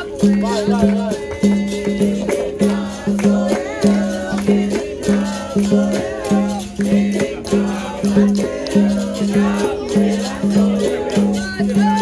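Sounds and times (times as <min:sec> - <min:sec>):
group singing: 0:00.0 - 0:12.0
shaker rhythm: 0:00.0 - 0:12.0.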